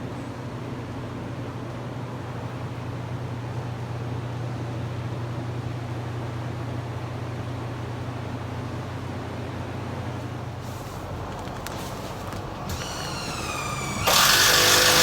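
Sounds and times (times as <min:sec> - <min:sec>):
low mechanical drone: 0:10.8 - 0:15.0.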